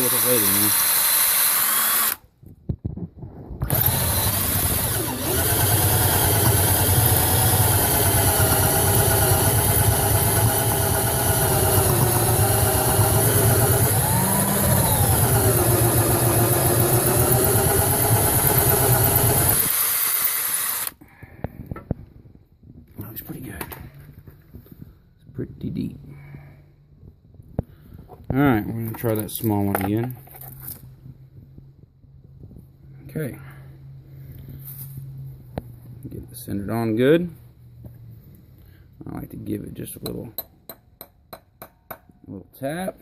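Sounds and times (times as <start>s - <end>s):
cordless drill whining: 0.0s - 2.2s, 3.6s - 21.0s.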